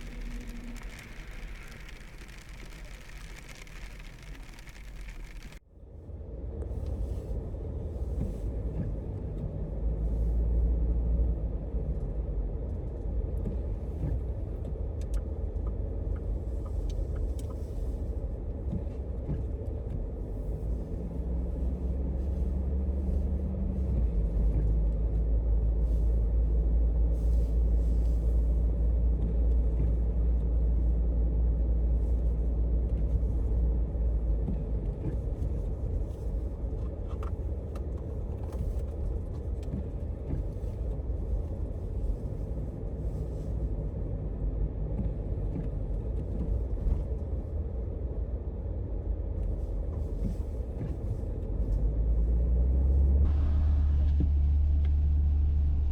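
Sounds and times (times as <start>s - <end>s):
road noise: 0.0s - 5.6s
motor vehicle engine rumble: 0.0s - 55.9s.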